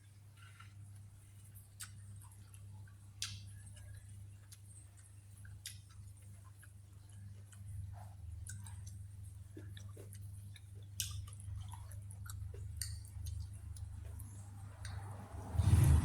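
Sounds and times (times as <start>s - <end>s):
person chewing food: 0.4s - 15.2s
wet mouth clicks and smacks: 1.8s - 7.6s, 8.4s - 15.1s
steady low hum: 3.6s - 16.0s.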